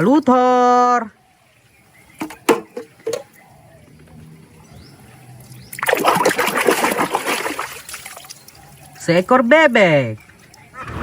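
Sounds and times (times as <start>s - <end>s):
splashing water: 5.4s - 9.0s.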